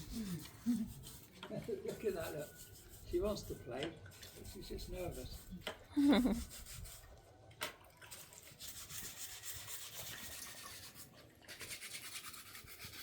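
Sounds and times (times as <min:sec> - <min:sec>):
rubbing and rustling: 0:00.0 - 0:07.1.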